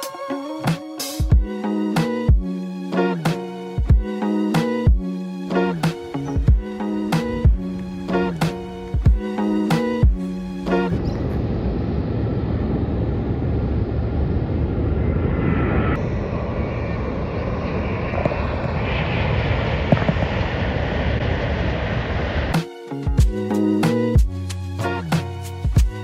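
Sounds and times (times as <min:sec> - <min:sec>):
high jet engine whine: 0:05.5 - 0:22.6
jet engines rumbling: 0:05.5 - 0:22.6.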